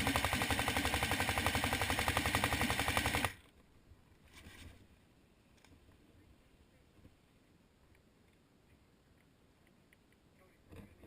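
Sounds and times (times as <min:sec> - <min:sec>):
airsoft gun full-auto burst: 0:00.0 - 0:03.4.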